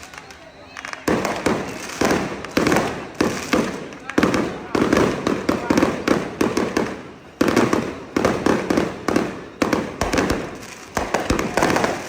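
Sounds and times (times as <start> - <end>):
firecrackers banging: 0.0 - 12.0.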